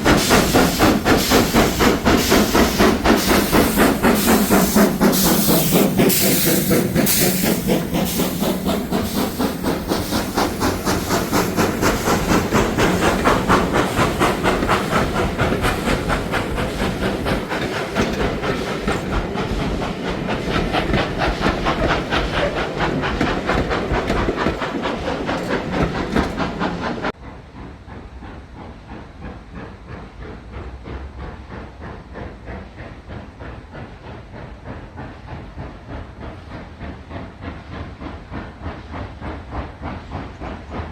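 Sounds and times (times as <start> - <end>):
steam hiss: 0.0 - 27.1
steam locomotive chuffing: 0.0 - 40.9.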